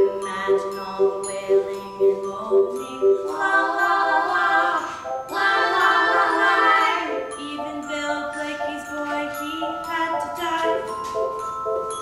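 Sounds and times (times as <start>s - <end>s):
light chiming accompaniment: 0.0s - 12.0s
voices singing wordless phrases: 0.3s - 8.2s.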